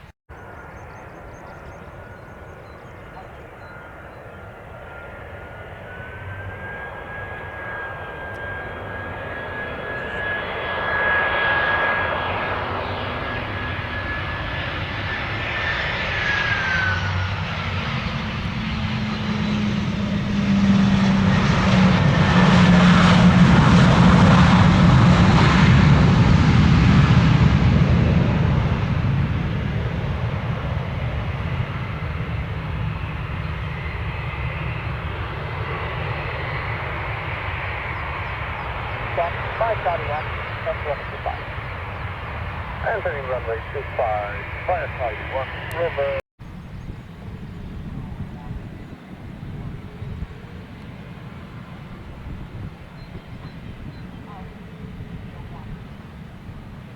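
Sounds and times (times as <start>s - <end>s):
jet engine rumble: 0.0s - 56.9s
jet engine whine: 0.0s - 56.9s.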